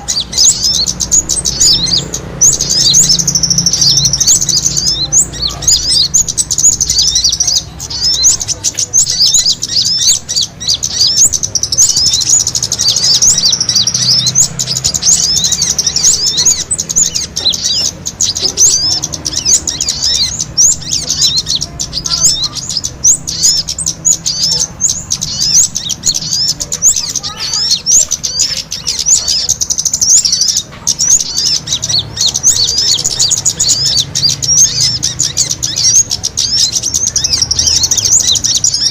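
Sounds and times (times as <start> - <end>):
small songbirds chirping: 0.0 - 38.9.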